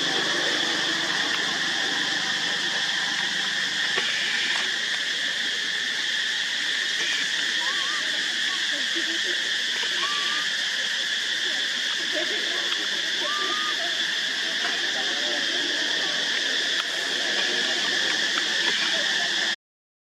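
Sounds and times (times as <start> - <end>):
insect chorus buzzing: 0.0 - 19.6
squeaky rising calls: 9.8 - 10.8, 12.8 - 19.5.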